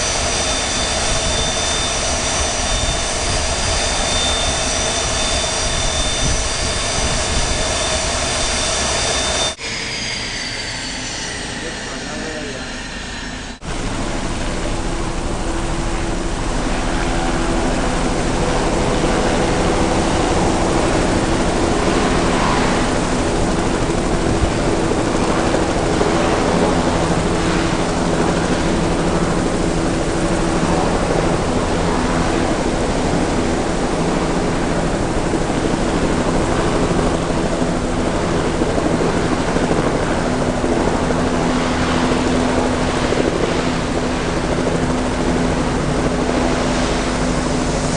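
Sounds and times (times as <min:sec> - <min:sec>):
aircraft engines roaring: 0:00.0 - 0:47.9.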